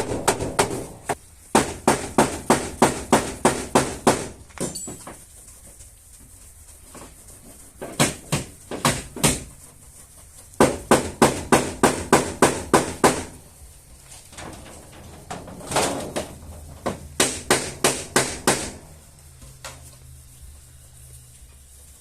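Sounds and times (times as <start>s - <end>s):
hammer tapping sheet metal: 0.0s - 5.0s, 7.8s - 9.5s, 10.6s - 13.4s, 15.6s - 19.0s.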